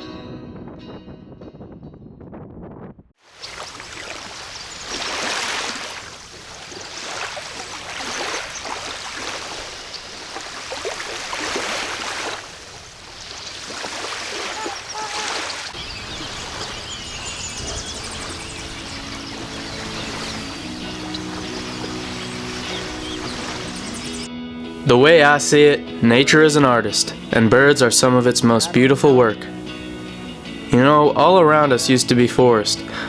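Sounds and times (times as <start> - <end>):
rushing outdoor noise: 3.2 - 25.0
music with sustained low notes: 15.8 - 33.0.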